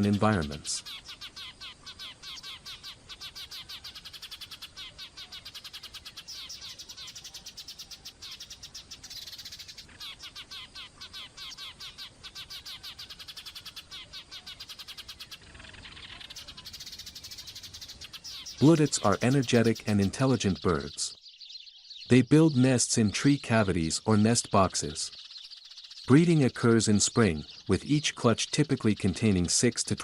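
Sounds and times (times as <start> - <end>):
songbirds chirping: 0.0 - 30.0.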